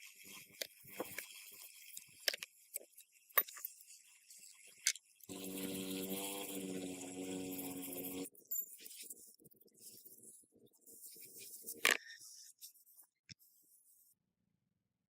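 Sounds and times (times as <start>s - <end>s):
steady machine hum: 5.3s - 8.3s.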